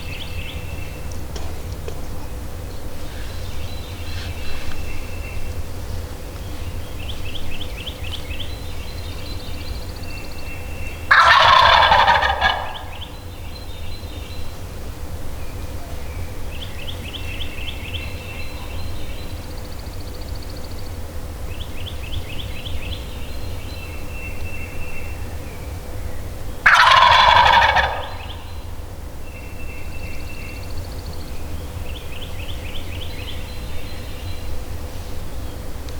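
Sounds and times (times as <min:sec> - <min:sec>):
distant turkey rattling calls: 0:10.9 - 0:13.3, 0:26.6 - 0:28.9
turkey gobbling: 0:11.1 - 0:13.2, 0:26.6 - 0:28.8.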